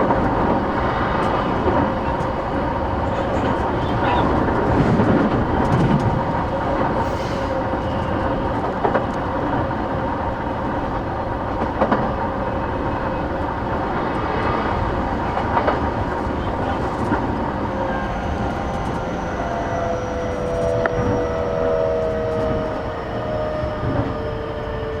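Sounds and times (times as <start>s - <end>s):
train interior rumble: 0.0s - 25.0s.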